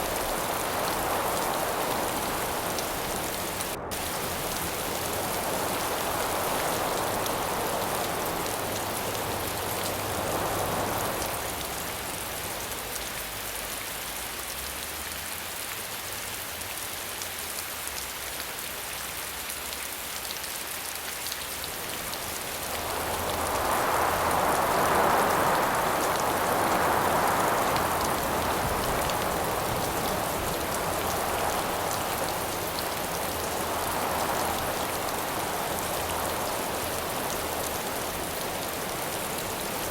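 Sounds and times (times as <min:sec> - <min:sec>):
wind gusts: 0:00.0 - 0:13.6, 0:21.1 - 0:39.9
rain hissing: 0:00.0 - 0:13.8, 0:19.4 - 0:39.9.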